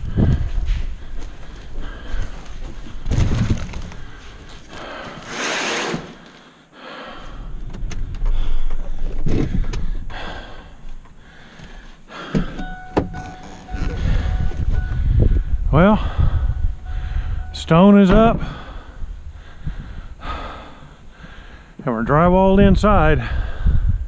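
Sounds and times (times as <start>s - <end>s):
car door shutting: 12.3s - 15.0s
thin steady beeping tone: 12.5s - 19.0s.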